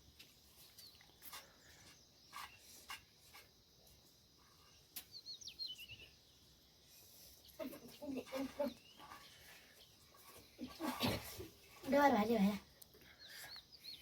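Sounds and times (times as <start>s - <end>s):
high bird chirps: 5.1s - 6.1s.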